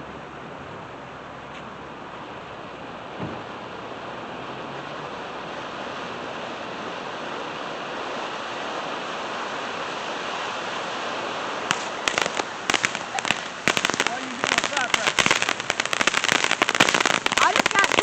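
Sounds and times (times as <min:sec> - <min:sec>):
steady hissing rush: 0:05.3 - 0:18.0
firecrackers cracking: 0:11.6 - 0:18.0.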